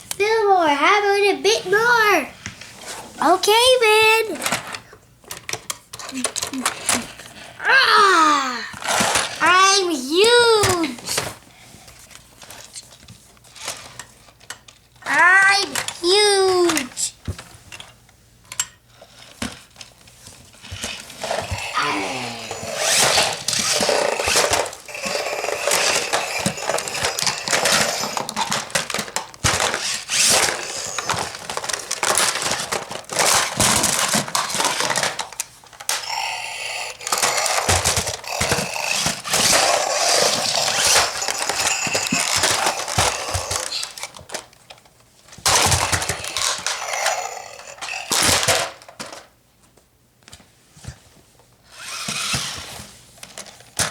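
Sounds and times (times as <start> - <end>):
toy cars clattering together: 4.2 - 7.4, 8.7 - 11.3, 13.5 - 17.1, 20.6 - 49.3, 51.7 - 53.9.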